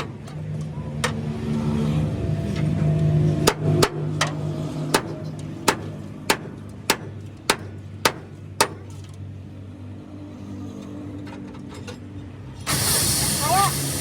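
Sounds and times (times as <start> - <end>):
engine running steadily: 10.4 - 14.0.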